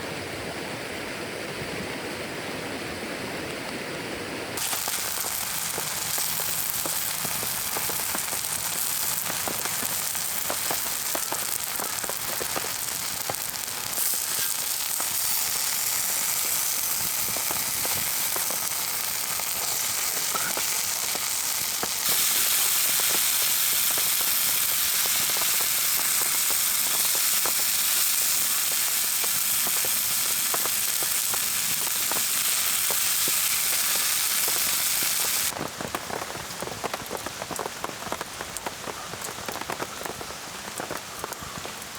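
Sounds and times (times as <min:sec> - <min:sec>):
food sizzling in a pan: 0:04.6 - 0:35.6.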